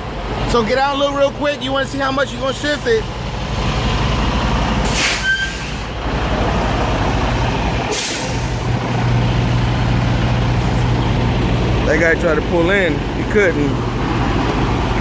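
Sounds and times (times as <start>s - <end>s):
truck diesel engine idling: 0.0s - 15.0s
air brake hiss: 4.8s - 6.0s, 7.9s - 8.7s.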